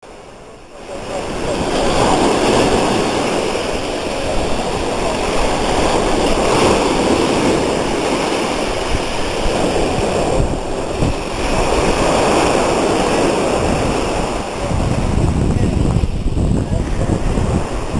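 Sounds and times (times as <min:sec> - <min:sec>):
sea waves washing ashore: 0:00.0 - 0:17.9.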